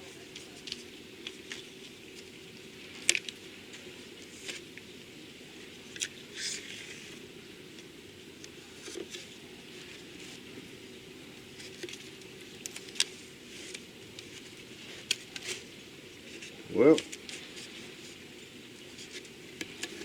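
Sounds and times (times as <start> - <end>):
rustling of handled tape: 11.5 - 20.0.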